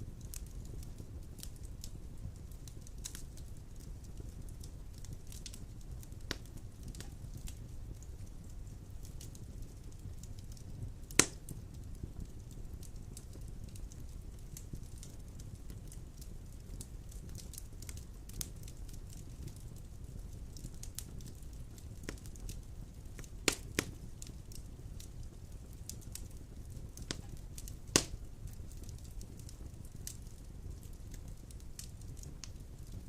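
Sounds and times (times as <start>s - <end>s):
wood fire crackling: 0.0s - 33.0s
loud pop from fire: 11.1s - 11.6s, 23.2s - 24.0s, 27.0s - 28.2s.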